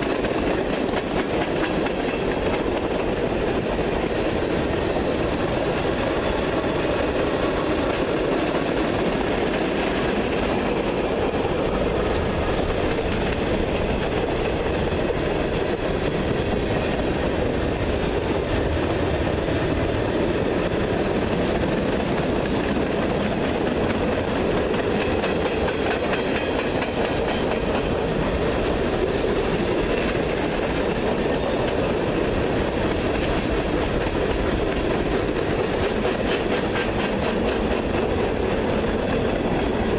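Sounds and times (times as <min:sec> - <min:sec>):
train rolling past on rails: 0:00.0 - 0:39.9.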